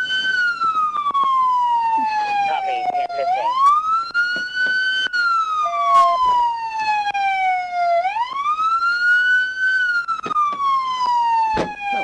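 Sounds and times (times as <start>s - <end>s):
police siren wailing: 0.0s - 12.0s.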